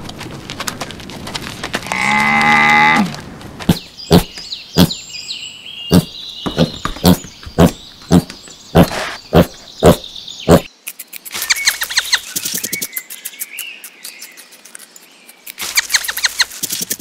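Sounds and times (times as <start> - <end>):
pigs grunting: 5.9 - 10.7.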